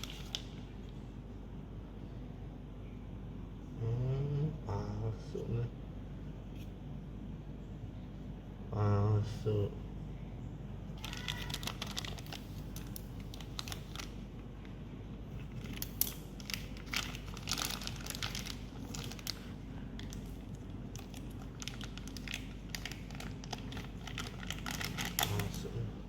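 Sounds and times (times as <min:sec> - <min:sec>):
packaging crinkling and rustling: 0:00.0 - 0:01.0, 0:11.0 - 0:25.8.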